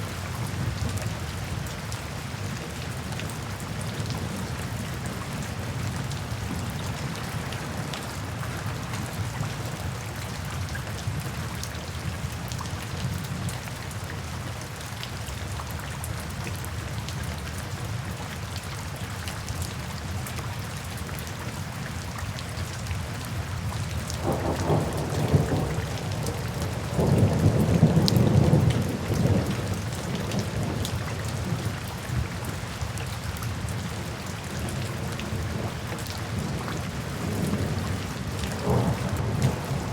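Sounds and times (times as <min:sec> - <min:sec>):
steady rain falling: 0:00.0 - 0:39.9
thunder rumbling: 0:24.2 - 0:29.8, 0:37.2 - 0:39.9.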